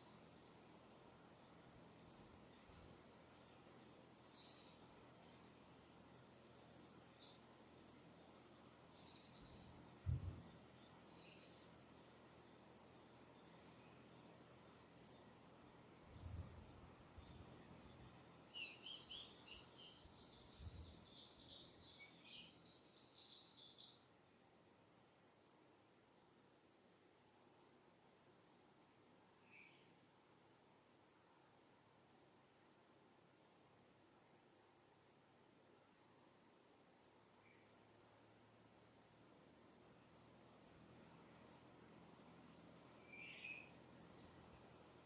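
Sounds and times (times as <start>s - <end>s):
bird twittering song: 0.0s - 24.1s, 41.2s - 41.8s, 43.0s - 44.8s
low rumble of breeze: 0.0s - 45.0s.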